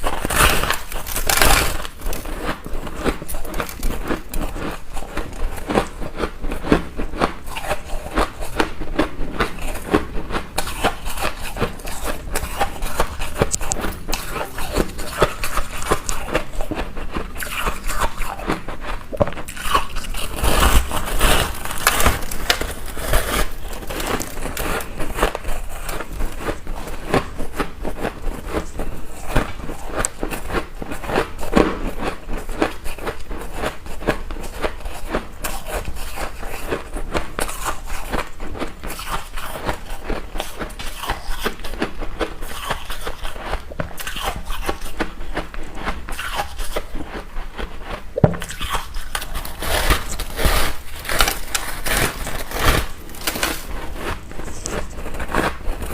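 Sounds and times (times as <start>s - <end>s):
person chewing ice: 0.0s - 55.9s.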